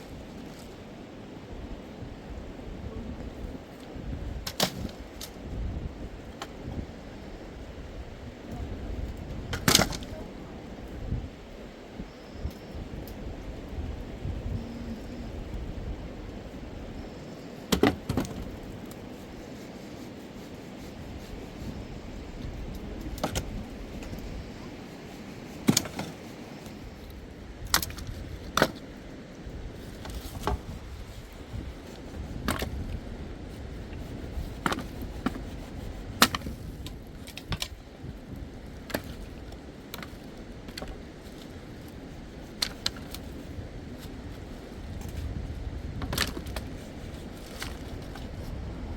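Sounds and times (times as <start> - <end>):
steady low rumble: 0.0 - 17.7, 20.2 - 25.6, 26.7 - 48.9.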